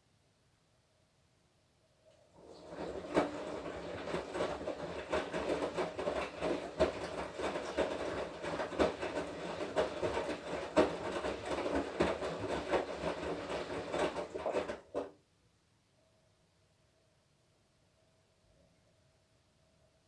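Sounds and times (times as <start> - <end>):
washing machine drum rattling: 2.4 - 15.1
knocks in washing machine: 2.7 - 15.1.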